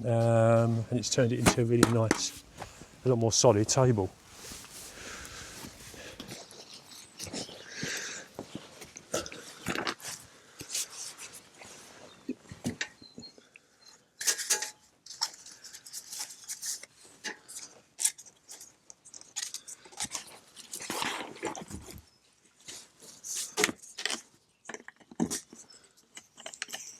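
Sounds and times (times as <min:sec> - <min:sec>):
camp gear knocking and rustling: 0:00.1 - 0:06.5.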